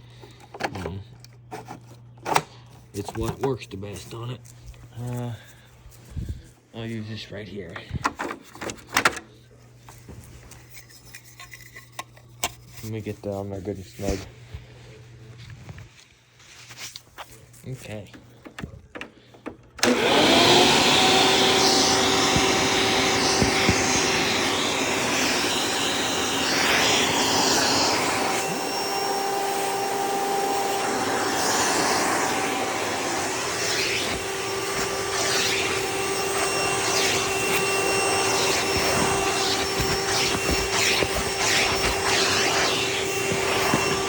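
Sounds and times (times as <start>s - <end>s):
vacuum cleaner motor whine: 18.5s - 44.0s
air rushing through hose: 20.3s - 29.2s, 30.5s - 44.0s.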